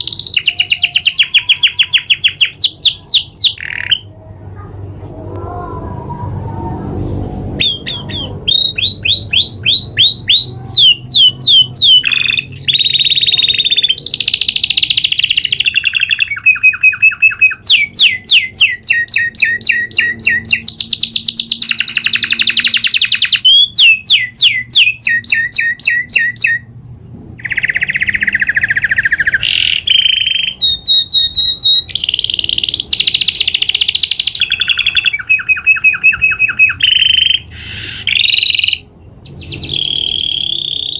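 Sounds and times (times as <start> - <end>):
canary singing trills: 0.0 - 5.4, 6.9 - 26.8, 27.4 - 40.9.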